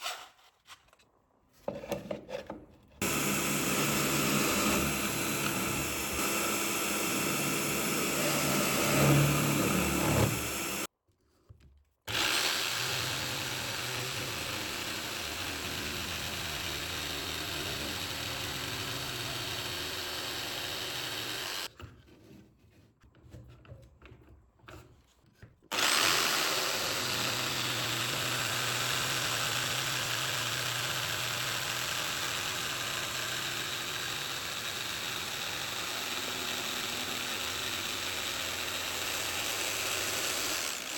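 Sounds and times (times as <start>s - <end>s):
power tool running on wood: 3.0s - 10.9s, 12.1s - 21.7s, 25.7s - 40.9s.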